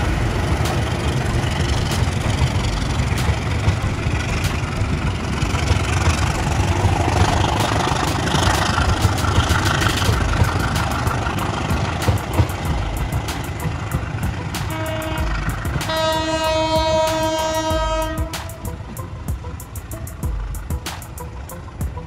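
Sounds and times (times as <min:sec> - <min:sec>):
sharp clicks of wheels: 0:00.0 - 0:17.4
train rumbling past: 0:00.0 - 0:22.0.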